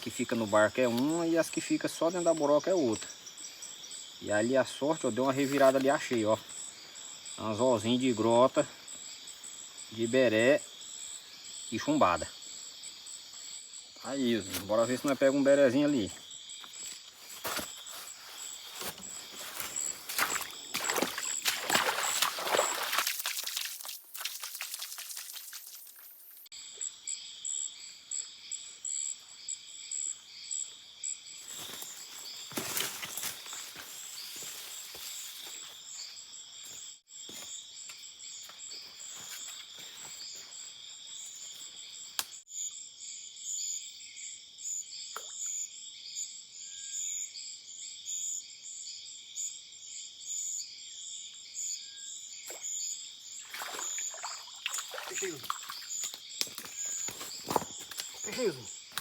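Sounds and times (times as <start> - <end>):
insects and frogs calling: 0.0 - 59.0
rustling noise: 16.7 - 20.6.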